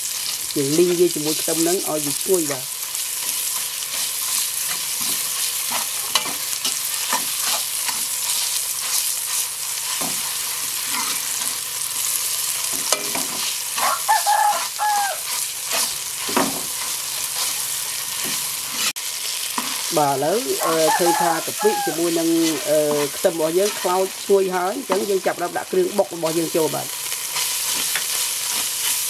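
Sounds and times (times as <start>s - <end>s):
shallots sizzling in a wok: 0.0s - 29.0s
metal ladle scraping a wok: 2.8s - 19.9s.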